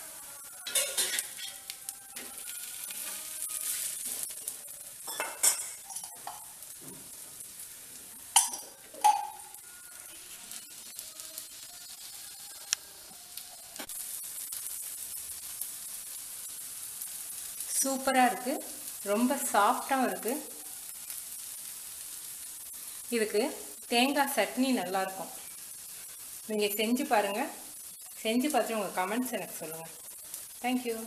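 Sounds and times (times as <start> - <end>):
flatbreads sizzling on a pan: 0.0 - 31.0
spatula scraping a pan: 0.6 - 7.1.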